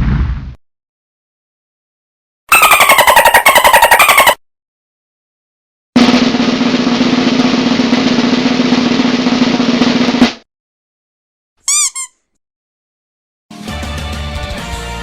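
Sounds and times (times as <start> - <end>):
snare drum roll: 6.0 - 10.4.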